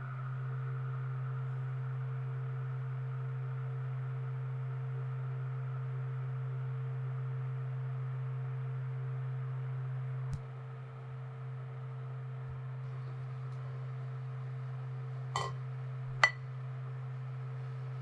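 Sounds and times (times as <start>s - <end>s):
low hum: 12.6s - 18.0s.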